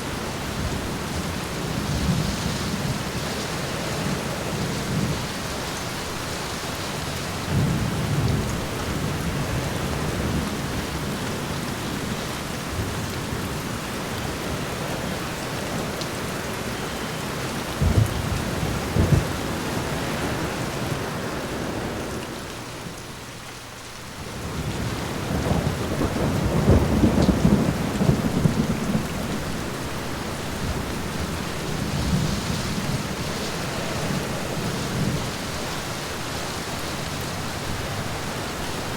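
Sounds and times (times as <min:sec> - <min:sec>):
rain on a window: 0:00.0 - 0:38.9
thunder: 0:07.5 - 0:11.0, 0:17.8 - 0:20.8, 0:24.4 - 0:33.4.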